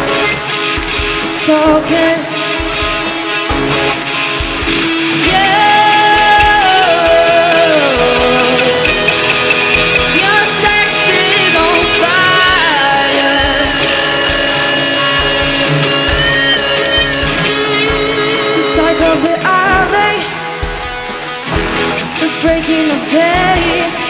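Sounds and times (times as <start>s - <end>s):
bass guitar: 0.0s - 2.1s, 3.0s - 20.2s
electric guitars sliding notes: 0.0s - 24.0s
steady drum beat: 0.0s - 24.0s.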